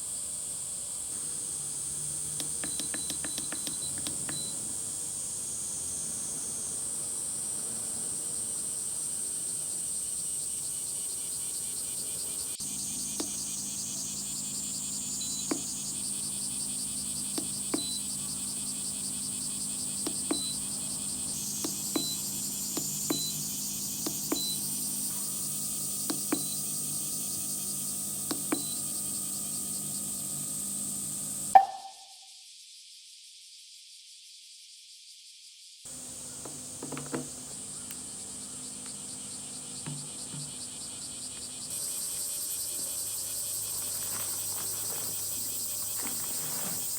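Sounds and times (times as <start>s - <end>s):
insects trilling: 0.0s - 46.9s
higher steady tone: 31.5s - 32.1s.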